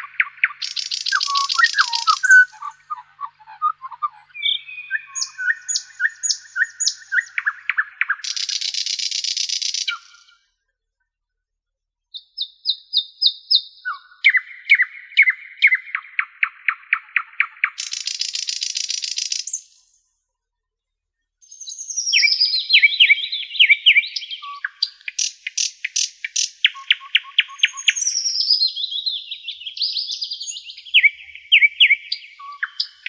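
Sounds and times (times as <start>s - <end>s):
buzzy bird trill: 0.0s - 10.0s
songbirds singing cascading notes: 0.0s - 10.3s, 12.2s - 19.6s, 21.4s - 33.0s
short bird chirps: 0.0s - 10.5s, 12.1s - 20.0s, 20.8s - 33.0s.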